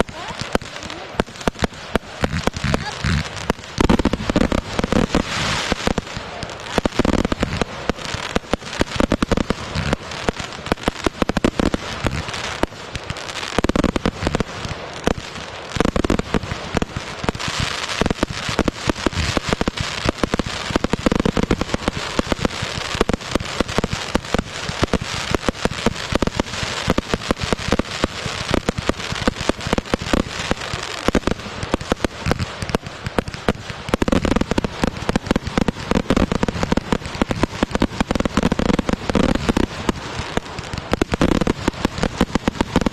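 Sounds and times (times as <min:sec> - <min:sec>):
fireworks booms: 0:00.0 - 0:42.9
fireworks crackling and popping: 0:00.0 - 0:42.9.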